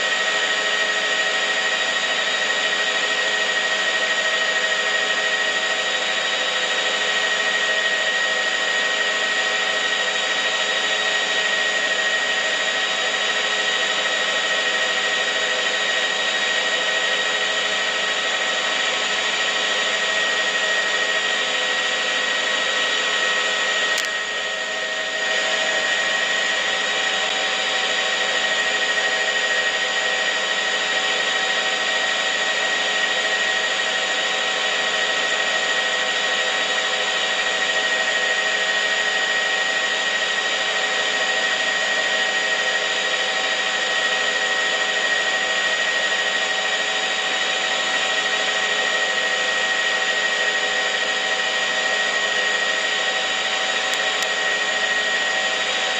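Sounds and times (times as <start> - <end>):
mechanical whirring with high whine: 0.0 - 36.3
click: 24.0 - 24.2, 53.9 - 54.4.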